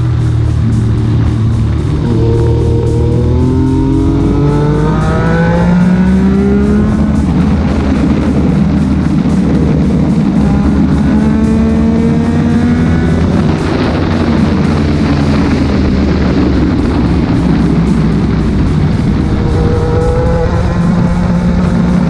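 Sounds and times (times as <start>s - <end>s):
background music: 0.0s - 22.0s
motorcycle engine accelerating: 0.0s - 22.0s
wind rush: 0.0s - 22.0s.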